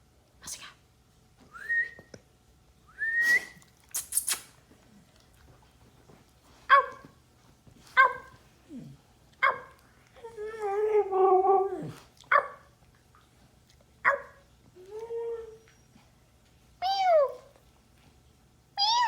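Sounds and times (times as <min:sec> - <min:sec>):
husky barking: 0:09.4 - 0:09.8
dog howling: 0:10.2 - 0:12.0.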